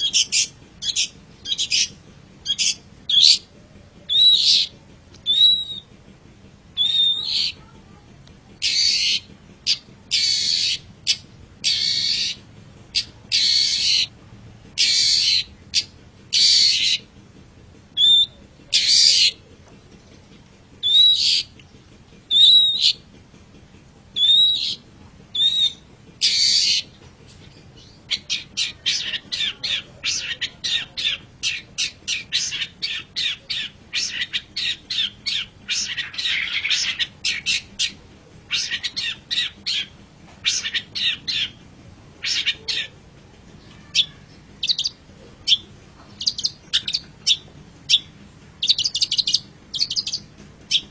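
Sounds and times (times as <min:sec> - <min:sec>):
bird harsh scratchy calls: 0:00.0 - 0:03.5, 0:04.1 - 0:04.7, 0:06.8 - 0:07.6, 0:08.6 - 0:14.1, 0:14.8 - 0:17.0, 0:18.0 - 0:19.4, 0:20.8 - 0:21.5, 0:25.4 - 0:41.6, 0:42.2 - 0:42.9, 0:43.6 - 0:45.6, 0:46.2 - 0:50.9
bird chattering notes: 0:00.0 - 0:05.9, 0:06.8 - 0:07.7, 0:08.6 - 0:14.1, 0:14.8 - 0:17.1, 0:18.0 - 0:19.5, 0:20.8 - 0:23.1, 0:24.2 - 0:41.6, 0:42.2 - 0:43.0, 0:43.7 - 0:50.9.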